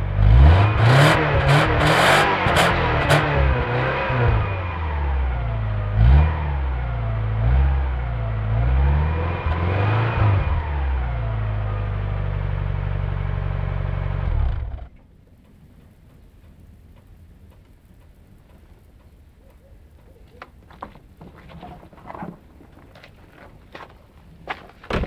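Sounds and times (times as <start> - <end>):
car engine revving and idling: 0.0 - 18.4.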